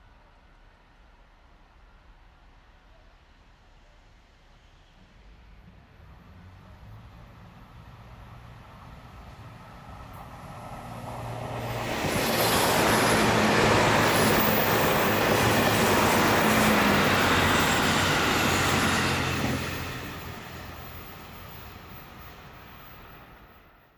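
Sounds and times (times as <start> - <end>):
train wheels rushing on rails: 9.4 - 23.8.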